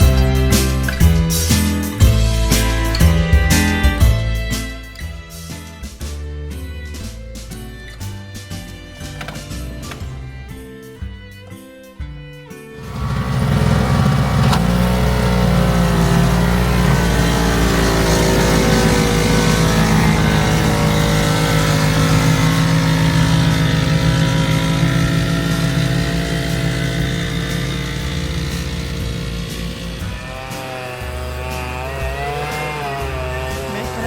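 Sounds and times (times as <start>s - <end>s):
engine running loudly: 12.8s - 34.0s.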